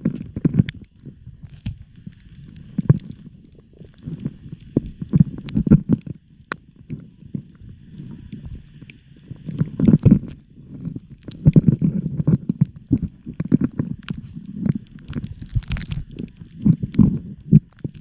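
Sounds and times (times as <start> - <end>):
muffled underwater rumbling: 0.0 - 18.0.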